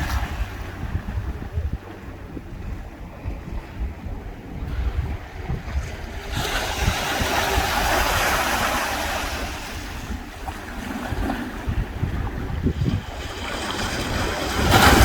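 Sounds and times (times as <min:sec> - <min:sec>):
wave wash running up sand: 0:00.0 - 0:15.0
wind on microphone: 0:00.0 - 0:15.0
waves breaking on sand: 0:04.6 - 0:15.0.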